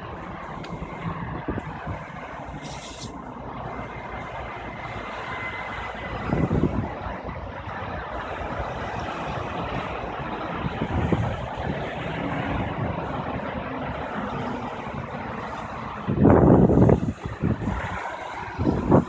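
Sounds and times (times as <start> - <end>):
vehicle engine running: 0.0 - 19.0
brief hiss: 2.6 - 3.2.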